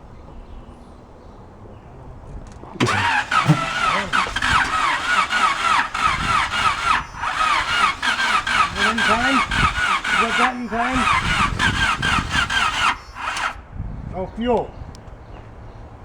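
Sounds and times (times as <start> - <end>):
engine cranking by starter motor: 2.4 - 13.6.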